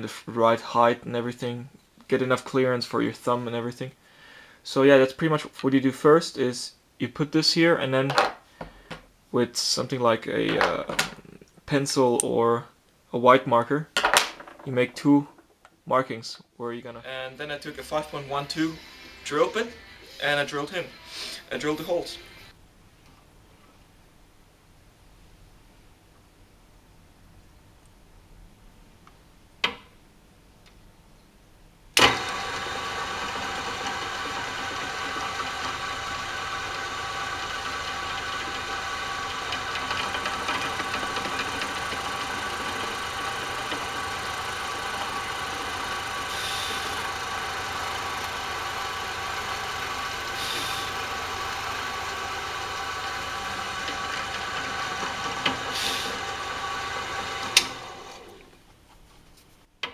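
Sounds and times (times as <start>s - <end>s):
drill switch click: 32.0s - 35.1s
electric drill whining: 32.0s - 58.5s.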